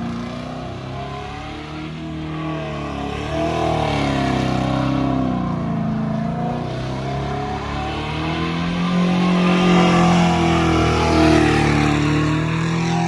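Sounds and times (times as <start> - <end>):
truck engine revving: 6.6 - 13.0.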